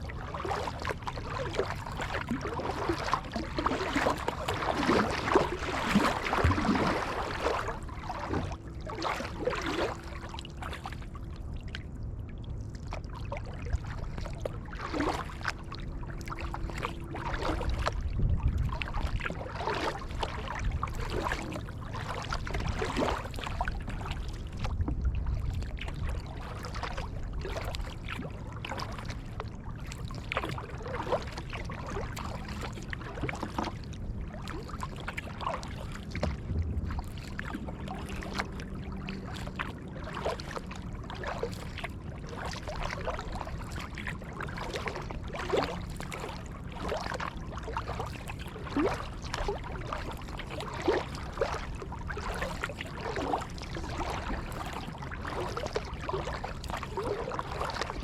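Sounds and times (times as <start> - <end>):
paddle splashing in water: 0.0 - 12.0, 12.6 - 58.0
water washing along hull: 0.0 - 58.0.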